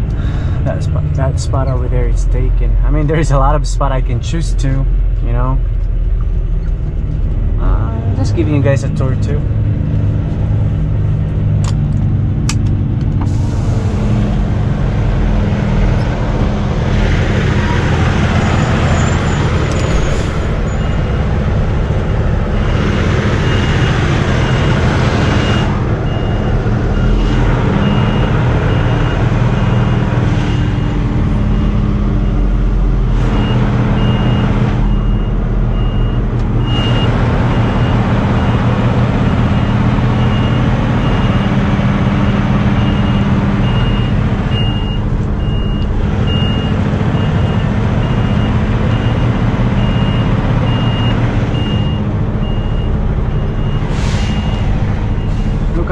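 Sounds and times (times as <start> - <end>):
diesel truck engine running: 0.0 - 55.9
faint reversing beeper: 42.2 - 55.6.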